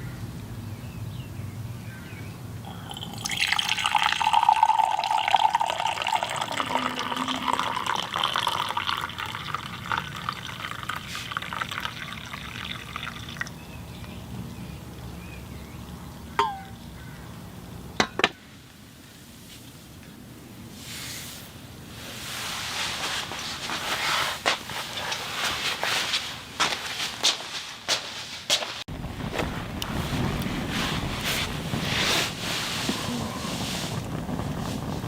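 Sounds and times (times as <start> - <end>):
water pouring: 2.7 - 13.6.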